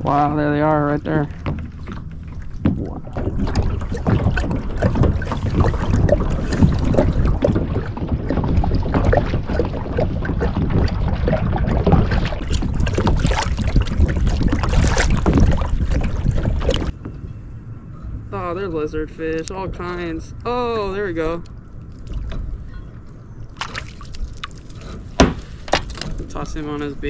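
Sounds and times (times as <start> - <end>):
water splashing against kayak hull: 0.0 - 17.0, 23.5 - 26.4
wind rumbling on microphone: 0.0 - 27.0.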